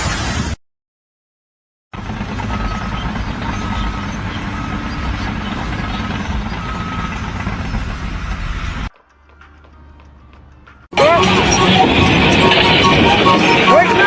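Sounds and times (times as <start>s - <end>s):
heavy vehicle engine running: 2.0s - 14.0s
reversing alarm beeping: 2.1s - 8.9s, 10.9s - 14.0s.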